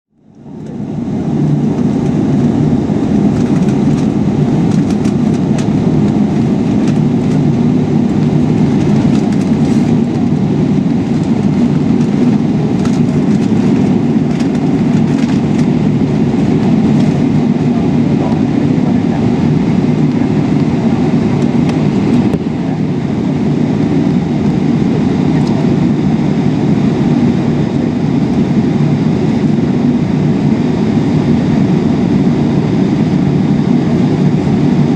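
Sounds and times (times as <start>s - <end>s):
aircraft cabin rumble: 0.2s - 34.9s.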